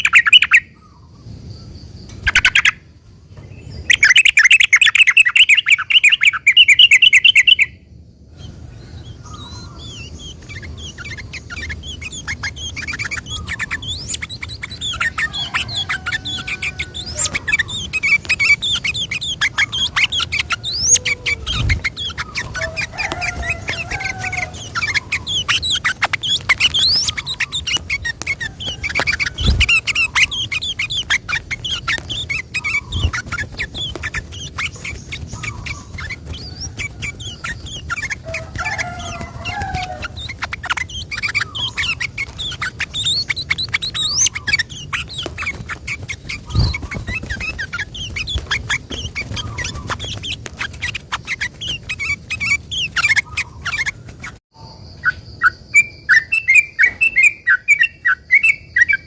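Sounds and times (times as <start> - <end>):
bird chirping and whistling: 0.0 - 0.8, 2.2 - 2.8, 3.6 - 7.8, 8.4 - 59.0.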